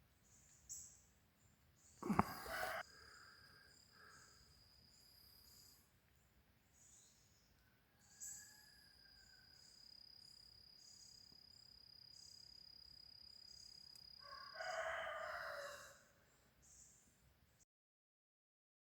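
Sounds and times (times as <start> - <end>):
insects trilling: 1.9 - 5.8, 9.1 - 15.7
loud animal call: 2.0 - 2.8.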